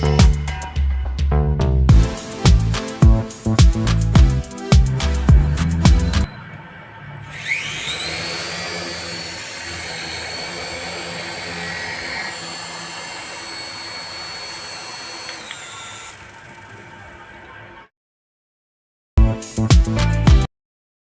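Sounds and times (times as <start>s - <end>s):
small electric motor whining: 6.0s - 17.6s.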